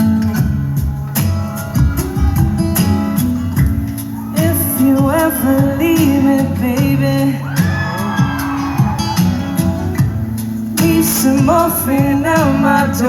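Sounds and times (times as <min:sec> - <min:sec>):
strummed acoustic guitar: 0:00.0 - 0:13.0
person singing: 0:03.5 - 0:09.6, 0:10.8 - 0:13.0.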